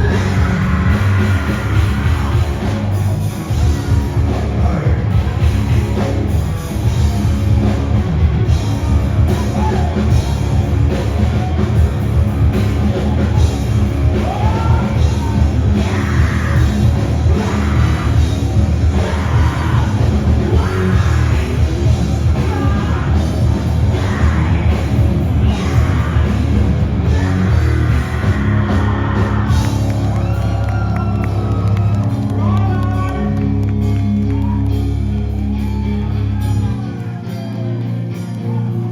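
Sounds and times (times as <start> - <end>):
rock band playing: 0.0 - 38.9
person singing: 14.1 - 30.0.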